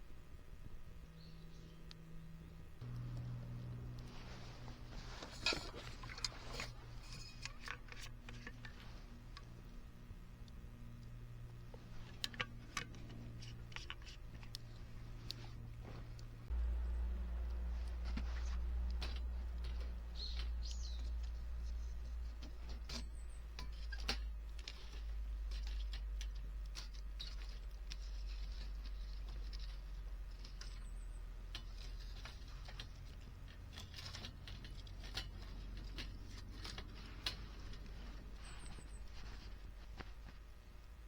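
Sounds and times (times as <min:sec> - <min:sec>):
bird chirping: 0:01.0 - 0:02.8, 0:19.7 - 0:22.3, 0:37.7 - 0:39.6
wood fire crackling: 0:01.8 - 0:41.0.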